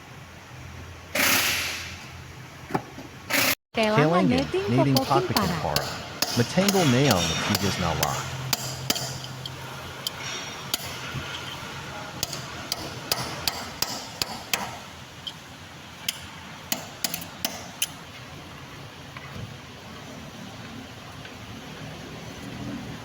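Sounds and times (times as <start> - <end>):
hammer striking metal: 5.0 - 9.3.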